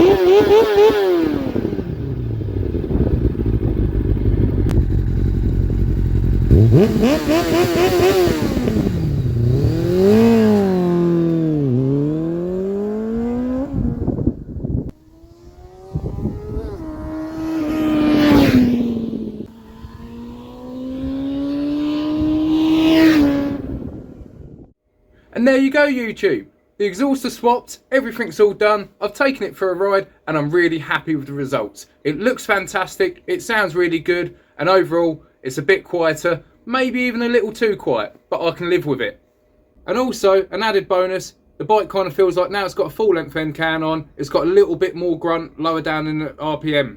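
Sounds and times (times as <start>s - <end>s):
motorcycle engine revving: 0.0s - 24.7s.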